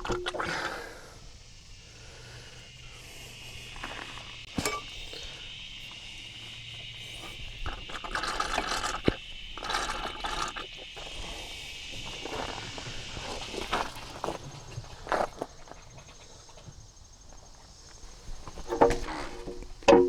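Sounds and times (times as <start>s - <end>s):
scraping and rattling: 18.4s - 20.0s.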